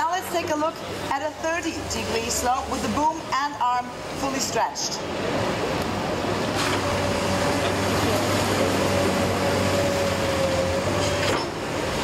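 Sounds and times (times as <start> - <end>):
excavator diesel engine running: 6.0 - 12.0.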